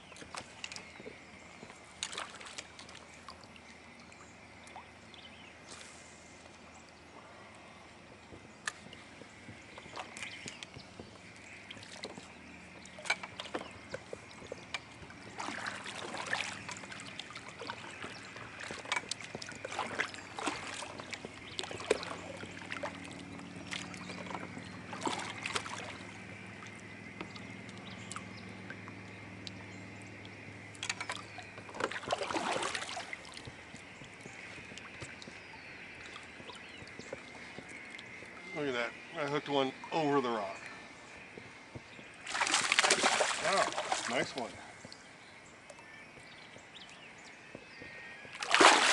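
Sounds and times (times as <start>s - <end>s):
water splashing: 2.0s - 5.0s, 8.7s - 29.6s, 30.2s - 40.7s, 42.2s - 45.1s, 48.3s - 48.9s.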